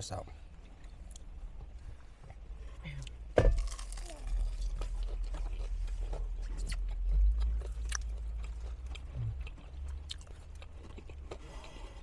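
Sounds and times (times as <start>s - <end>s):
low steady hum: 0.0s - 12.0s
chewing fried chicken: 3.6s - 12.0s.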